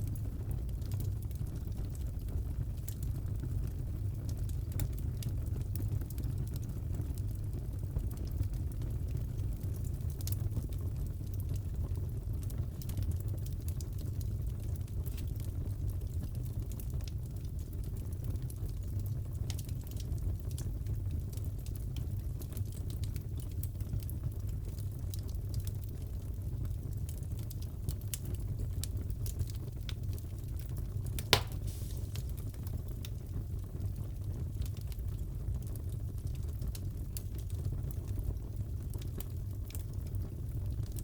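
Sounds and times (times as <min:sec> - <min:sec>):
fire crackles and pops: 0:00.0 - 0:41.0
wood fire rumbling: 0:00.0 - 0:41.0
fireplace crackling: 0:28.9 - 0:33.3
loud sharp pop of fire: 0:31.2 - 0:32.6.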